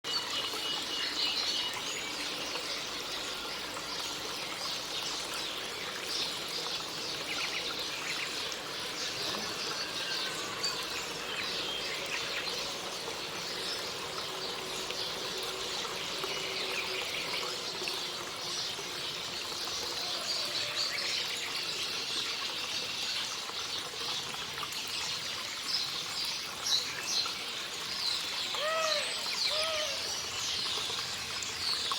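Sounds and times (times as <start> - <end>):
songbirds chirping: 0.1 - 31.9
low bird calls: 28.5 - 30.3.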